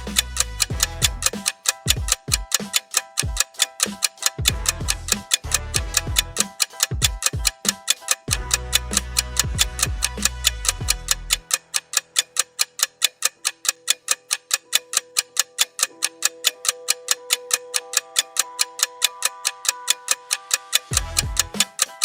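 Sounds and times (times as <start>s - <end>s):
bass part: 0.0s - 1.3s, 4.4s - 6.4s, 8.3s - 11.3s, 21.0s - 21.6s
fast steady ticking: 0.0s - 22.0s
soft held synth notes: 16.5s - 21.6s.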